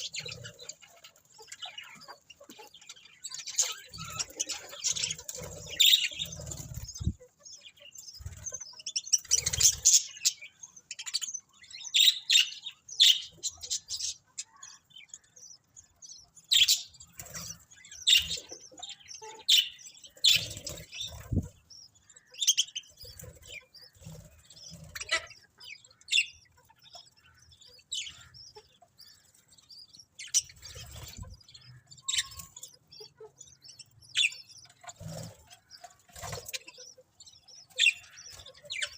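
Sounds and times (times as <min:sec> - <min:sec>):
budgerigars chirping: 0:00.0 - 0:38.9.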